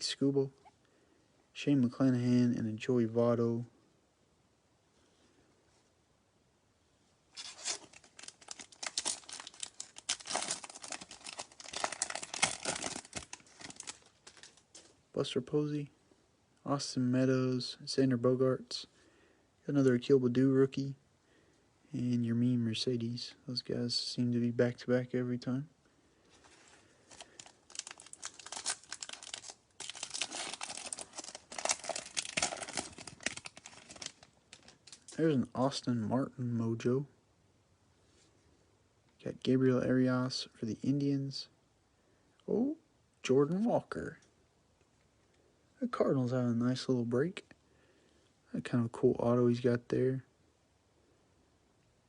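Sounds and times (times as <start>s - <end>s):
foil wrapper tearing and crinkling: 7.4s - 14.6s, 27.1s - 35.2s.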